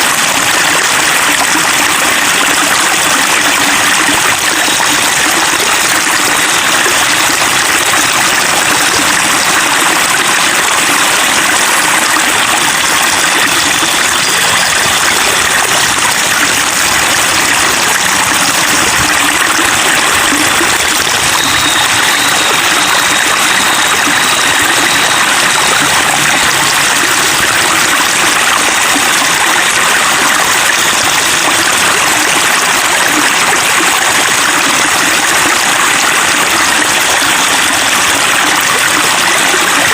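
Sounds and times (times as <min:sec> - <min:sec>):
water babbling and trickling: 0:00.0 - 0:39.9.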